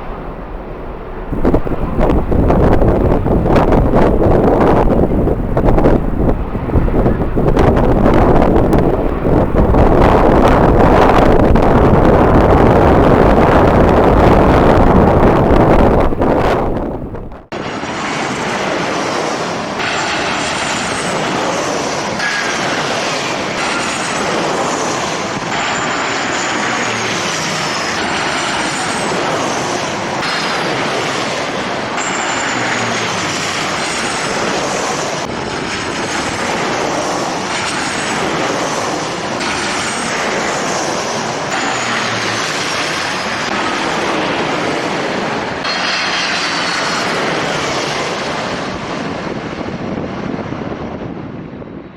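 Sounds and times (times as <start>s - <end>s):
high whine sliding down: 0.0s - 18.4s
jet engines roaring: 0.0s - 51.9s.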